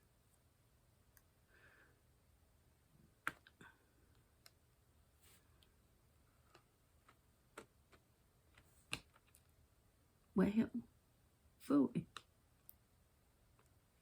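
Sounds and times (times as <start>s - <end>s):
faint plastic clicks and taps: 12.0s - 12.8s.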